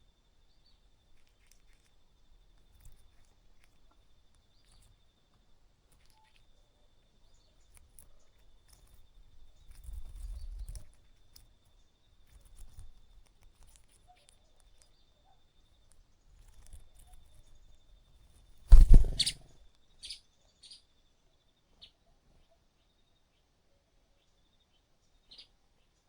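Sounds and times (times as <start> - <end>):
faint short chirps: 18.7 - 20.2.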